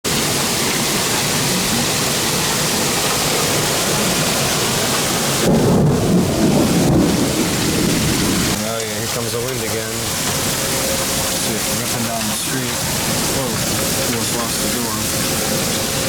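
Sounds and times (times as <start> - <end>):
heavy rain pouring: 0.0 - 16.0
wind: 0.0 - 16.0
low rumble of thunder: 4.0 - 11.5.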